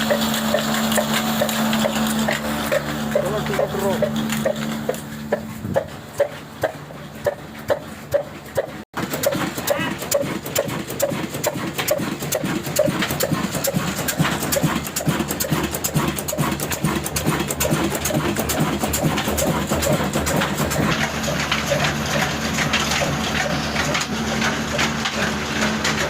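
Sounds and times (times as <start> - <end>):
diesel engine running steadily: 0.0 - 26.0.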